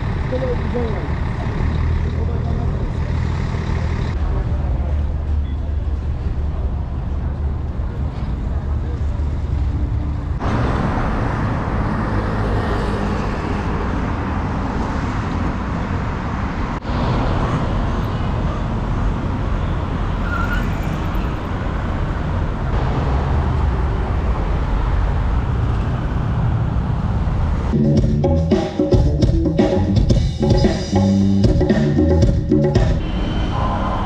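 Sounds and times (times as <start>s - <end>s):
city traffic rumble: 0.0s - 34.0s
music with drums: 27.8s - 33.0s.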